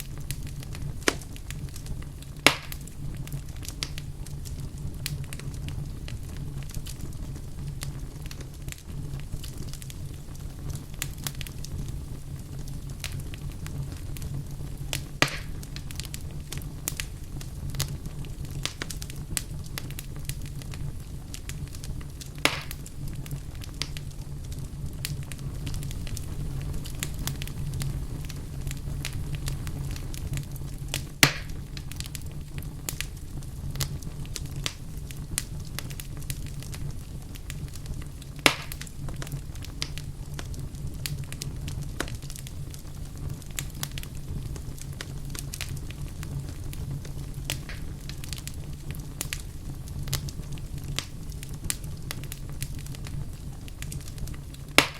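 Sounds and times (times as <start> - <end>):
fire rumbling and crackling: 0.0 - 54.9
sharp pops from fire: 0.0 - 54.9.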